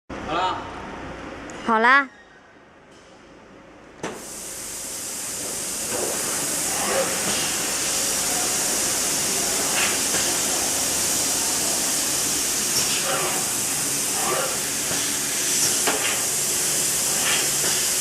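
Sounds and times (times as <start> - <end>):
high machine hiss: 4.1 - 18.0.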